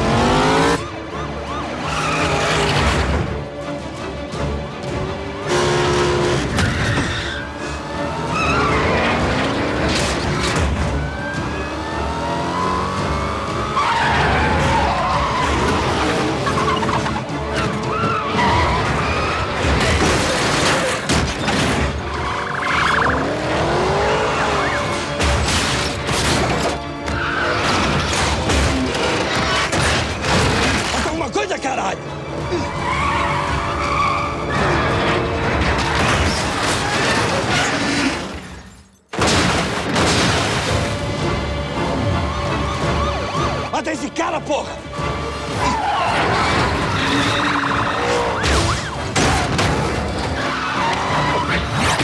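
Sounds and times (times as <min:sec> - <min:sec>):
tyres squealing and skidding: 0:00.0 - 0:03.5, 0:05.3 - 0:39.1, 0:41.1 - 0:52.0
car engines revving: 0:00.0 - 0:38.5, 0:39.9 - 0:52.0
crash impacts: 0:39.1 - 0:41.2.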